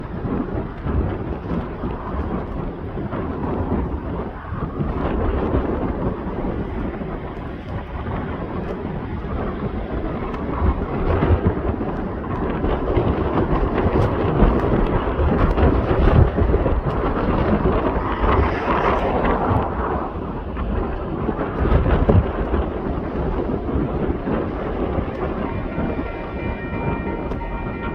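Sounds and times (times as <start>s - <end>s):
diesel train rumble: 23.6s - 27.9s.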